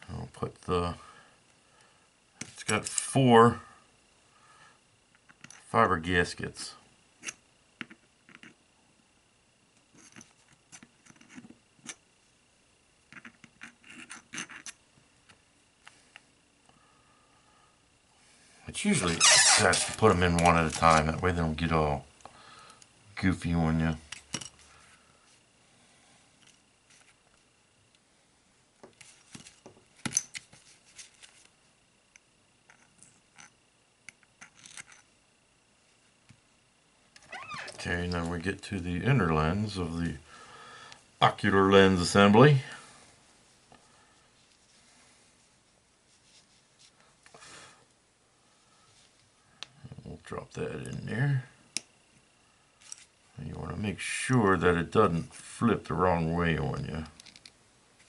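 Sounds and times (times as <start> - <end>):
small parts clicking and tapping: 13.1 - 16.0, 32.1 - 35.1, 57.1 - 57.6.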